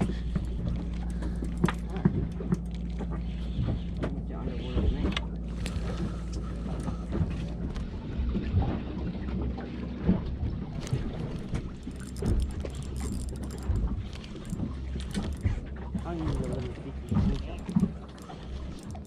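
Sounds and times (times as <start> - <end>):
gear knocking and clicking: 0.0 - 4.2, 10.8 - 19.0
boat motor running: 0.0 - 19.0.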